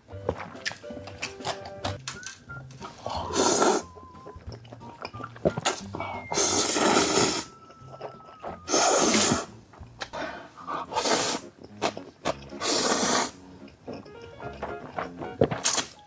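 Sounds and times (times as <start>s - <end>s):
noodles being slurped: 2.8s - 7.6s, 8.6s - 13.8s
mouth clicks: 2.8s - 14.2s.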